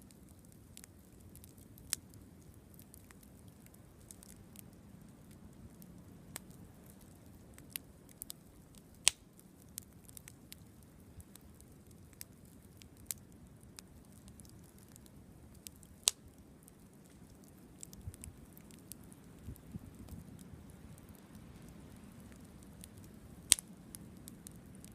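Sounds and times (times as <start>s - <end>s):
campfire crackling and popping: 0.0s - 24.9s
faint low hiss: 0.0s - 24.9s.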